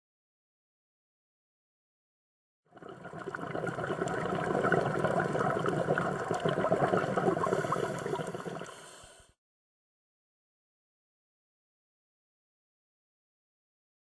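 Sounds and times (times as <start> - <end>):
underwater bubbling crackle: 2.7 - 9.2.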